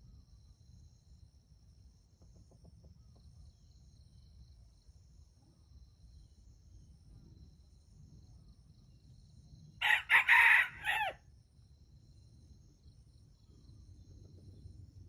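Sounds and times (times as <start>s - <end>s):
rooster crowing: 9.8s - 11.2s.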